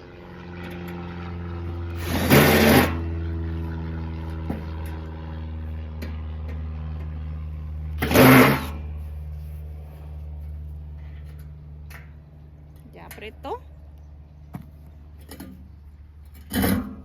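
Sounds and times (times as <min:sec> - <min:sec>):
low hum: 0:00.0 - 0:17.0
electric drill whirring: 0:01.9 - 0:03.1.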